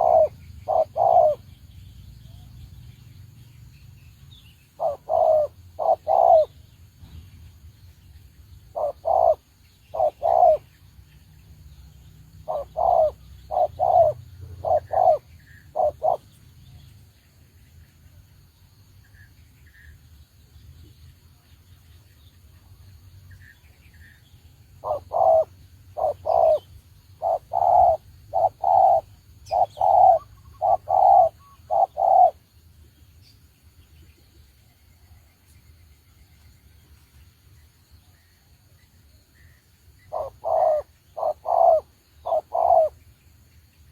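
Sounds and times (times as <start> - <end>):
dove cooing: 0.0 - 1.5, 4.8 - 6.6, 8.7 - 10.7, 12.4 - 16.4, 24.8 - 32.4, 40.1 - 43.0.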